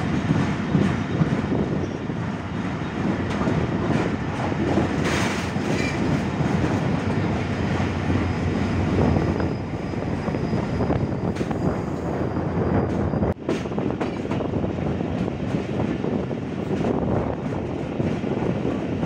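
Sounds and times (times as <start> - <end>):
wheels clacking over rail joints: 0.0 - 12.1
train wheels rumbling on rails: 0.0 - 19.0.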